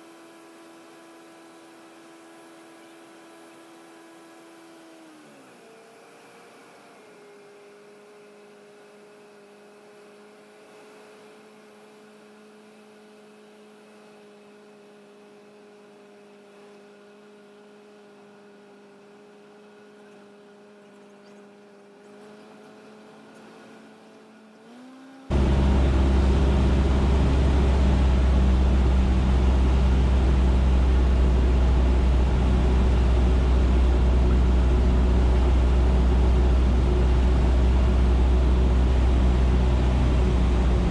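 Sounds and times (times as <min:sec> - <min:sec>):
airplane engine drone: 0:22.0 - 0:40.9
cabin drone: 0:24.7 - 0:40.9.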